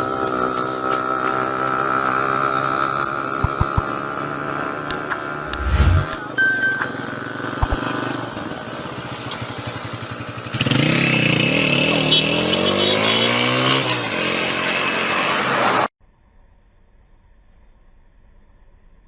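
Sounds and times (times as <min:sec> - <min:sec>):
engine revving: 0:05.3 - 0:06.2.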